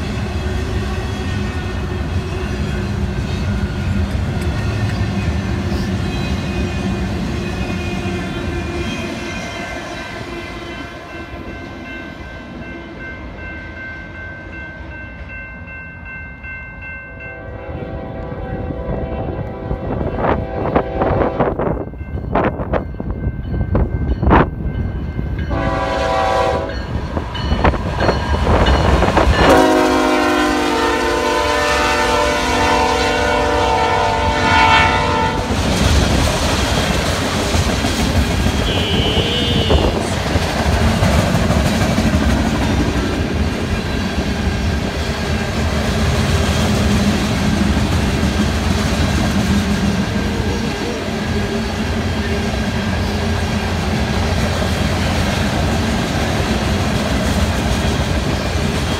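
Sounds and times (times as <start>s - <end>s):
train wheels clickety-clack on rails: 0.0s - 14.3s, 17.2s - 58.9s
train horn blasts: 17.3s - 21.8s, 25.5s - 27.0s, 28.9s - 35.6s, 38.5s - 40.3s.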